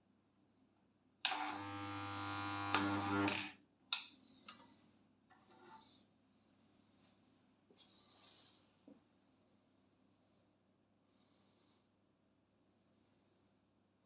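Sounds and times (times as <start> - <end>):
spot welder mains hum: 1.3 - 3.6.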